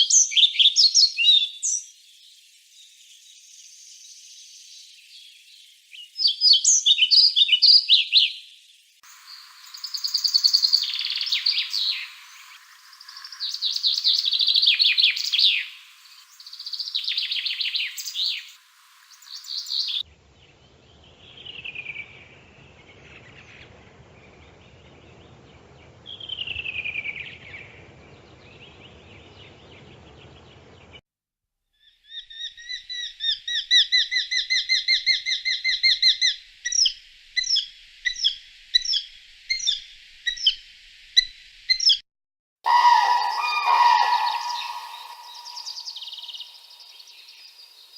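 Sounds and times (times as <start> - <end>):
songbirds trilling: 9.1 - 31.0, 42.7 - 47.9
bird chattering notes: 42.7 - 46.4
falling whistled bird notes: 42.7 - 47.5.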